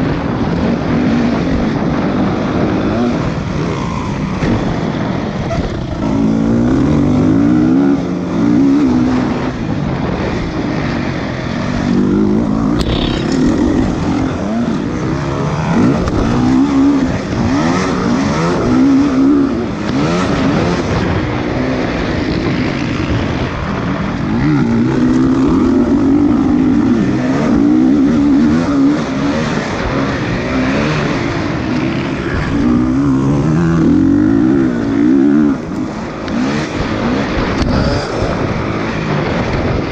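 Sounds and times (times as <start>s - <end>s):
motorcycle engines revving: 0.0s - 39.9s.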